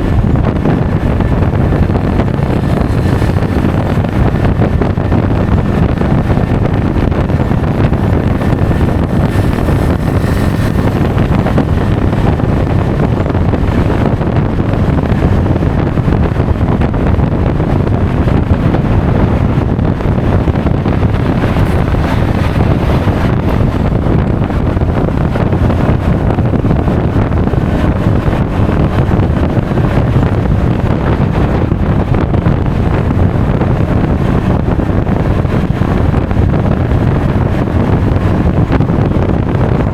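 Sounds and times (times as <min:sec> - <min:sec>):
road noise: 0:00.0 - 0:39.9
wind buffeting microphone: 0:00.0 - 0:39.9
scooter engine: 0:00.8 - 0:14.3, 0:18.9 - 0:26.2.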